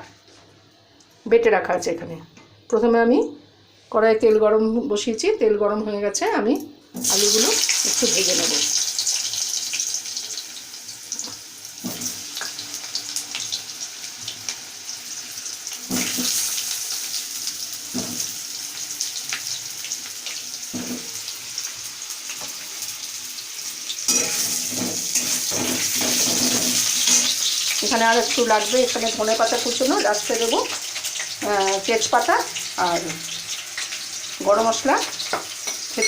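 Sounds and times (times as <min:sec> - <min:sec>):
potatoes sizzling in oil: 0:07.0 - 0:36.0
spatula scraping pan: 0:24.1 - 0:27.6.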